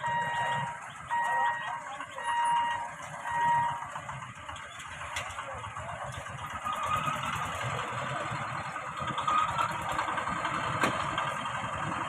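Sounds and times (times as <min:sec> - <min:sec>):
electronic warning beeps: 0:00.0 - 0:03.8
vehicle engines idling: 0:00.0 - 0:12.0.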